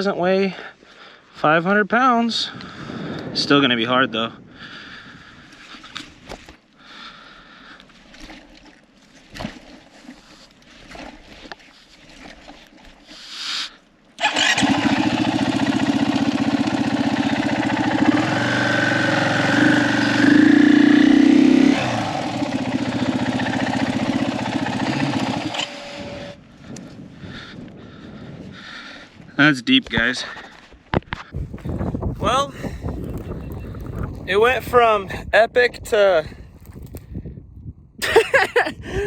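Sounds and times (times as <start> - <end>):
motorcycle engine starting and revving: 14.2 - 26.4.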